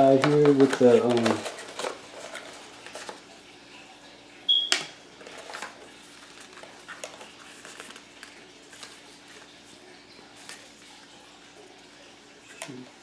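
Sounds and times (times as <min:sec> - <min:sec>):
cardboard rustling: 0:00.0 - 0:03.2, 0:05.2 - 0:09.8.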